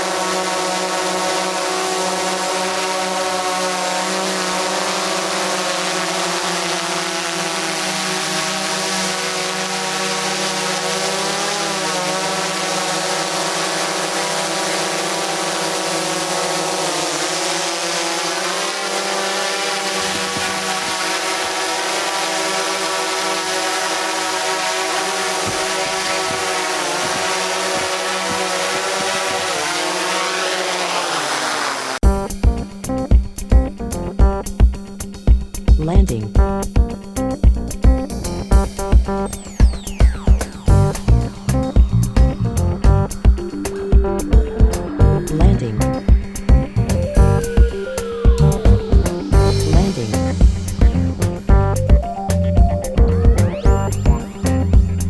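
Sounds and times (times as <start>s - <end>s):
drone propellers whining: 0.0s - 55.0s.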